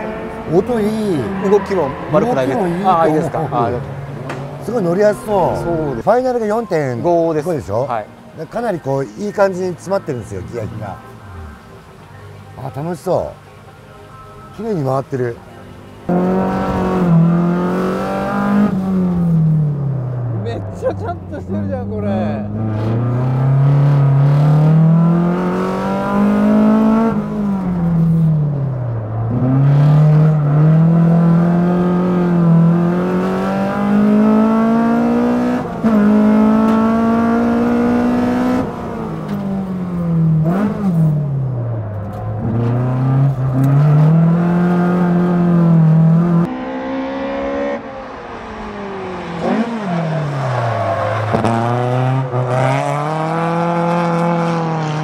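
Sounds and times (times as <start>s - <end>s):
car engine revving hard: 16.1s - 20.1s, 22.4s - 28.3s, 29.3s - 41.5s, 42.4s - 55.0s.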